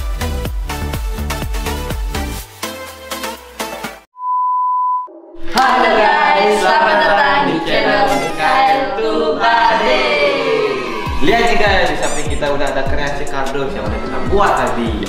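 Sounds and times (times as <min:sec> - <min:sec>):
high-pitched beep: 0:04.2 - 0:05.2
young voices singing jingle: 0:05.4 - 0:12.2
electronic dance music: 0:05.5 - 0:08.9, 0:09.6 - 0:15.0.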